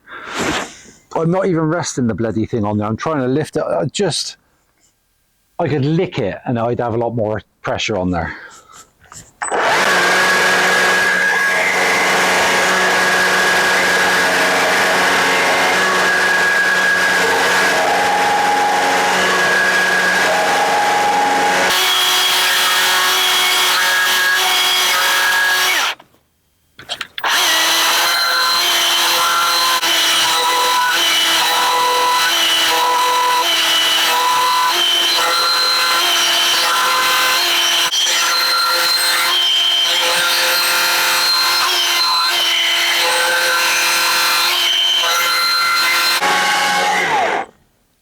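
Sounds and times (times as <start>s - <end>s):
power carving tool cutting wood: 9.4s - 26.0s, 27.0s - 47.6s.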